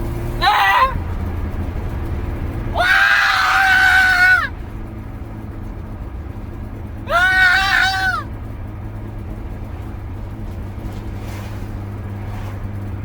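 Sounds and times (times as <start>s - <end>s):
car engine droning: 0.0s - 13.0s
person yelling: 0.3s - 1.0s, 2.7s - 4.5s, 7.1s - 8.3s.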